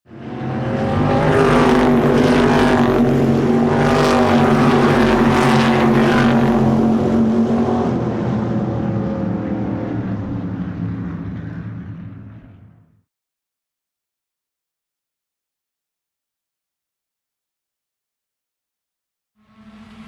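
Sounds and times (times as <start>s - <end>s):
vehicle engine running: 0.1s - 13.0s, 19.4s - 20.0s.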